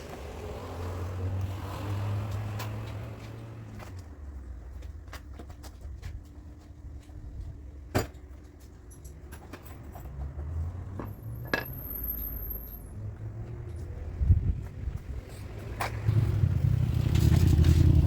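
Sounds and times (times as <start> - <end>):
light metal clinks and taps: 8.2 - 10.3.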